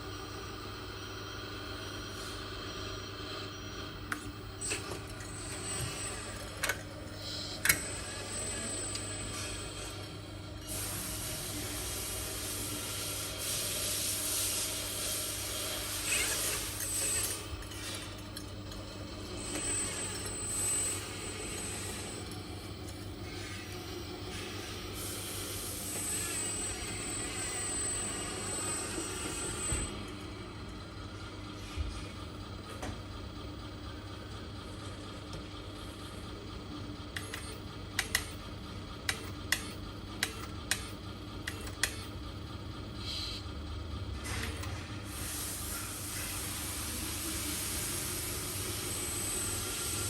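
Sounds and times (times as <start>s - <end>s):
thin high whine: 0.0s - 32.1s
toy truck mechanical hum: 3.9s - 12.4s, 14.6s - 30.2s.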